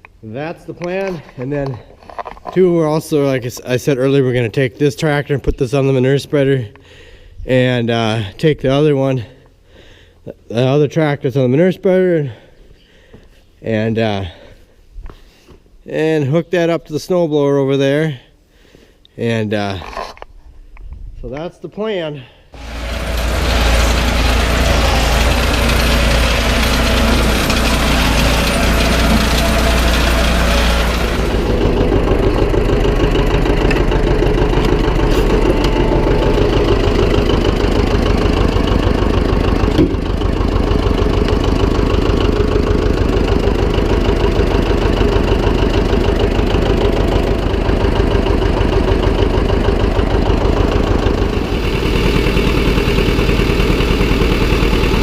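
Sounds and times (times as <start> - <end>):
tractor engine idling: 22.6 - 55.0.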